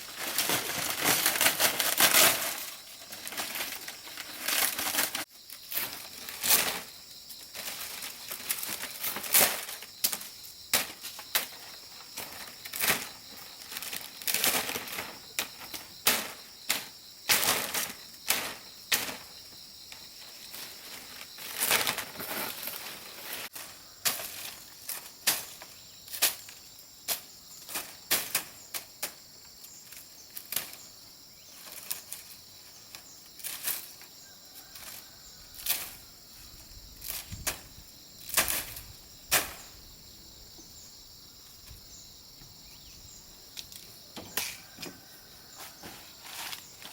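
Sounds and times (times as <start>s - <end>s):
leafy plants rustling and snapping: 0.0s - 19.3s, 19.9s - 30.9s, 31.6s - 34.0s, 35.6s - 36.0s, 37.0s - 39.7s
insects droning: 0.0s - 46.9s.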